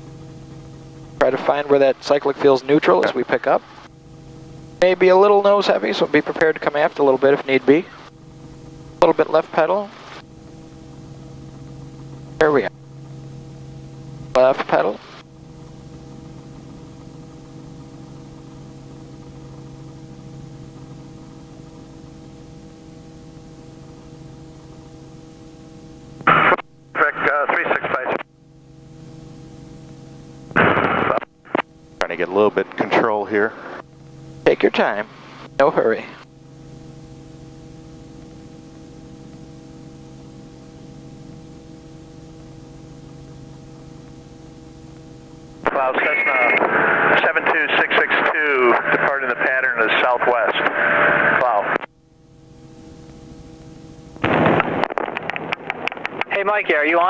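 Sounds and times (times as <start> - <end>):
helicopter hum: 0.0 - 57.0.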